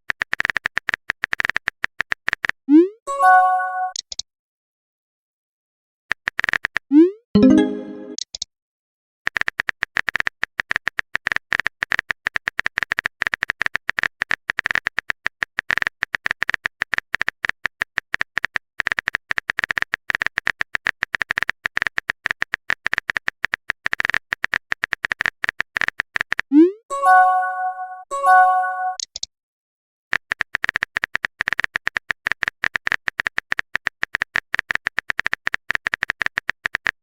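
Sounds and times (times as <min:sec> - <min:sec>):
keyboard typing clicks: 0:06.2 - 0:08.5, 0:30.1 - 0:37.0.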